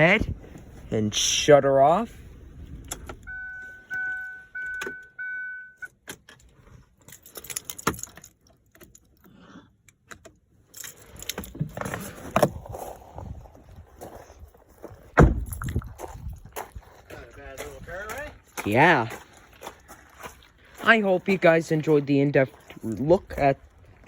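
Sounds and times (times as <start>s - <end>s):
car warning chime beeping: 3.2s - 6.0s
keys jangling and clicking: 6.1s - 9.3s, 10.6s - 12.2s
loud thump: 15.2s - 15.8s.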